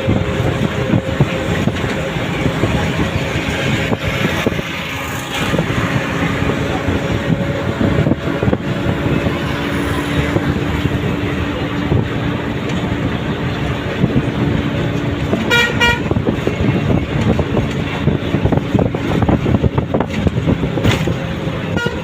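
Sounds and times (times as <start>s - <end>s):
bus engine and road rumble: 0.0s - 22.0s
vehicle horn toots: 15.4s - 16.2s, 21.7s - 22.0s.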